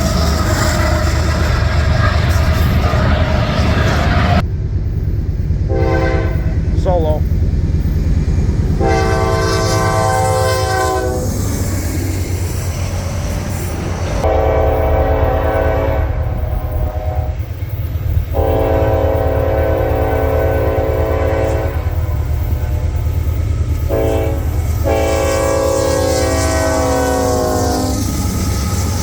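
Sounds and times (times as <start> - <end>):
passing train rumble: 0.0 - 29.0
locomotive air horn blasts: 5.7 - 6.5, 8.8 - 11.3, 14.2 - 17.4, 18.3 - 22.2, 23.8 - 28.1.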